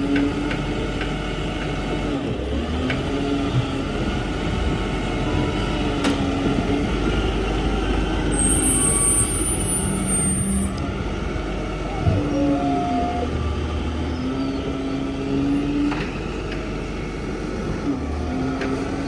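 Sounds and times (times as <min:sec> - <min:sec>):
garbage truck engine running: 0:00.0 - 0:19.0.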